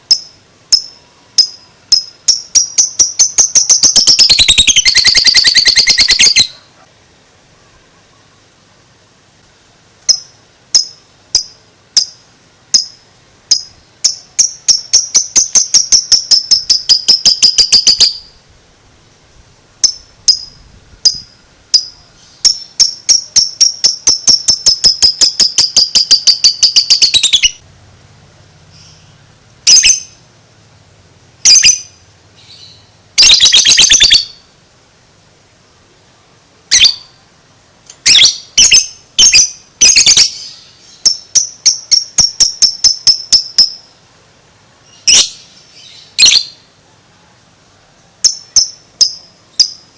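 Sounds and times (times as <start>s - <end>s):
lovebird chirping rapidly: 0.0s - 6.8s, 10.0s - 18.4s, 19.8s - 27.6s, 28.7s - 30.2s, 31.4s - 34.5s, 36.7s - 37.2s, 38.0s - 44.0s, 44.9s - 46.7s, 48.2s - 49.9s.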